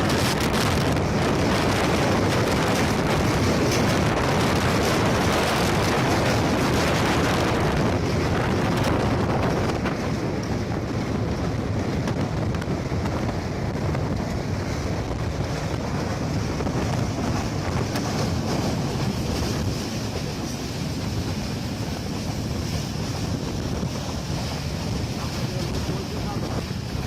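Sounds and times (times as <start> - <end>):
moving train rumble: 0.0 - 27.0
wind on microphone: 0.0 - 27.0.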